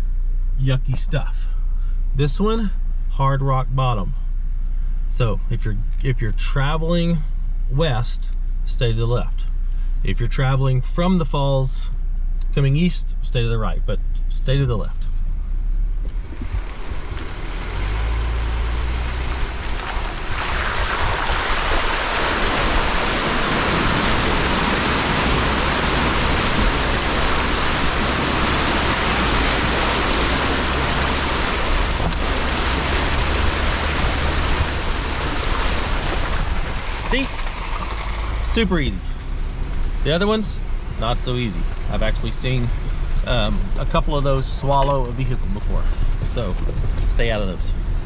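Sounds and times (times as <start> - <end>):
engine humming low: 0.0 - 48.0
tyres churning water: 19.4 - 38.6.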